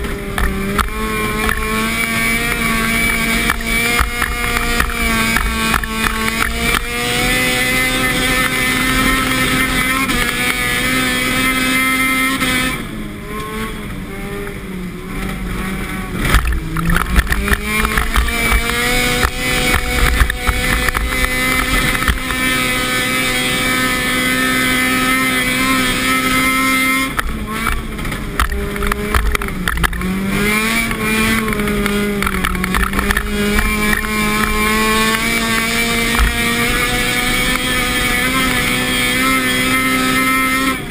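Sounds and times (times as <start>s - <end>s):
sharp knocks and rattles: 0.0s - 11.2s, 16.2s - 23.4s, 27.1s - 39.7s
car engine at high revs: 0.0s - 40.9s.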